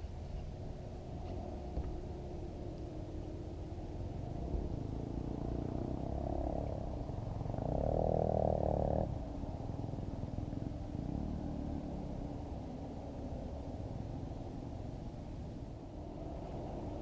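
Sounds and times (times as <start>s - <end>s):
motor engine droning: 0.6s - 17.0s.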